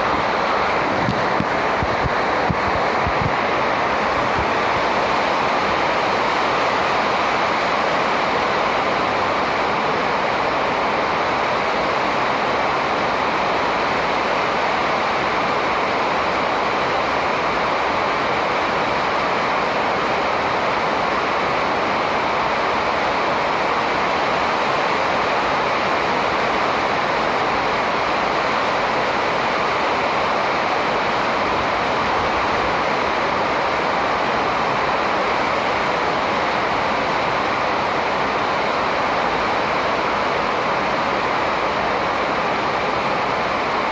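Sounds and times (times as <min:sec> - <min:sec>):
steady rushing noise: 0:00.0 - 0:08.1.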